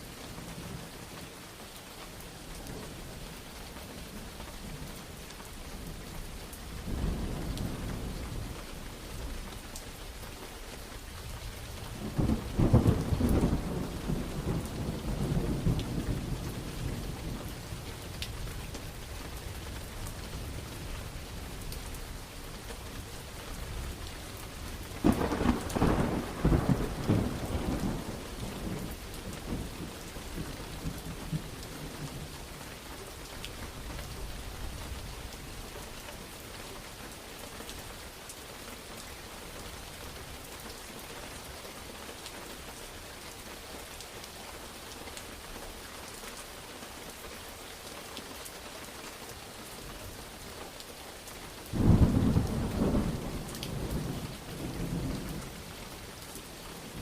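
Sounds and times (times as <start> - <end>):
steady rainfall: 0.0 - 57.0
thunder rolling: 25.0 - 31.5, 51.8 - 55.5.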